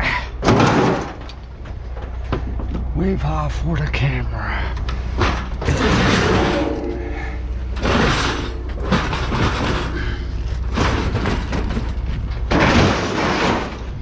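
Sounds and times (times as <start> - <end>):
scrap metal banging and crashing: 0.4 - 2.5, 5.1 - 14.0
low engine hum: 1.0 - 12.9.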